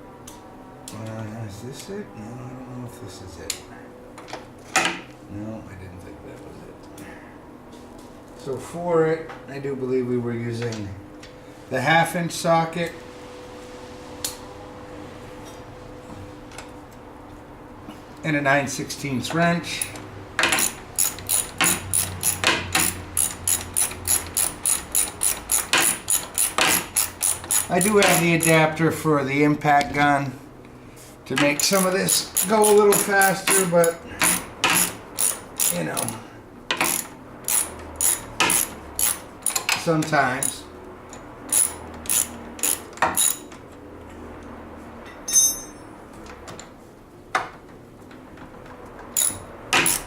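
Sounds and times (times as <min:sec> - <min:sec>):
metal tools clinking: 0:19.8 - 0:28.6, 0:31.4 - 0:39.8, 0:45.1 - 0:46.0
socket ratchet clicking: 0:19.8 - 0:28.6, 0:31.4 - 0:39.8, 0:41.5 - 0:43.4, 0:49.2 - 0:50.0.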